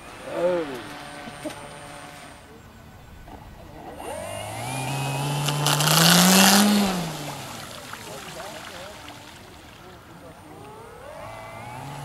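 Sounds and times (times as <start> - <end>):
model plane engine throttling up: 0.0 - 12.0.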